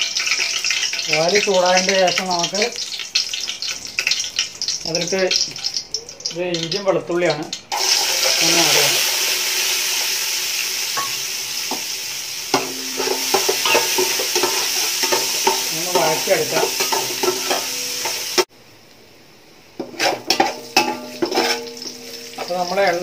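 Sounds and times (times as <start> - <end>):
garlic sizzling in hot oil: 0.0 - 18.5, 19.5 - 23.0
spoon scraping metal pot: 12.6 - 18.4, 19.8 - 22.5.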